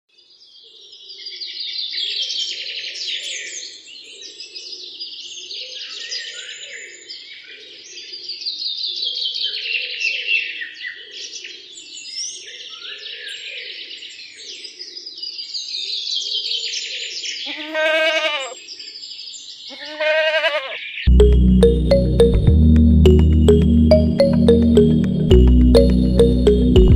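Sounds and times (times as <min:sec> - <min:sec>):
small birds chirping: 0:11.0 - 0:20.9
long bleats: 0:17.5 - 0:18.6, 0:19.7 - 0:20.8.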